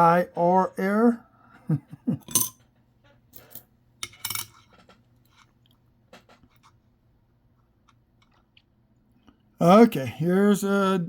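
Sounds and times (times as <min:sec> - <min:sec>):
coins clinking: 0:02.3 - 0:02.6, 0:03.4 - 0:04.6.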